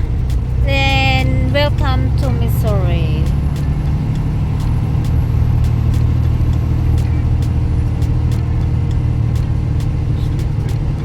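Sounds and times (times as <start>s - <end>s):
diesel truck engine drone: 0.0s - 11.0s
road noise: 0.0s - 11.0s.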